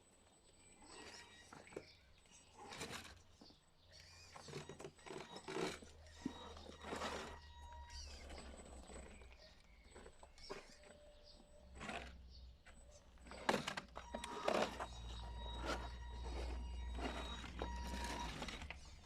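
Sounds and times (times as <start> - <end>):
toy truck electric motors whining: 0.6 - 19.0.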